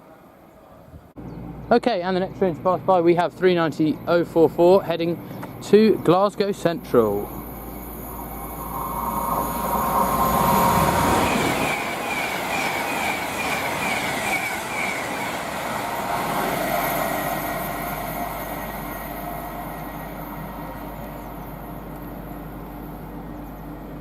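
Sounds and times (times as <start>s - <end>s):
electric train passing: 0.0s - 24.0s
high-pitched train squeals: 7.0s - 23.9s.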